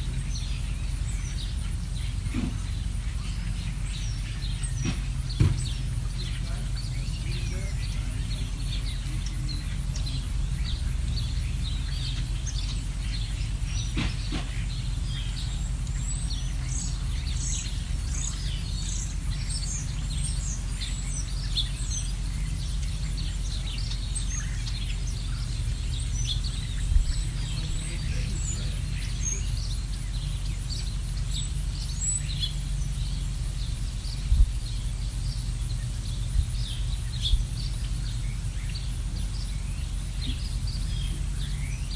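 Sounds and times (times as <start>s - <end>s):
low rumble: 0.0s - 41.9s
small birds chirping: 0.0s - 41.9s
low thumps: 4.0s - 8.2s, 25.9s - 28.8s, 33.1s - 37.8s.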